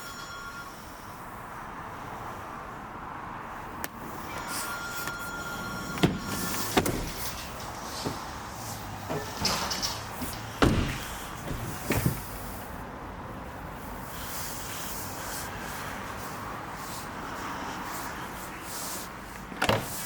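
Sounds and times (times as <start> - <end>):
car door being shut: 6.0 - 7.3, 10.2 - 12.6, 19.6 - 20.0.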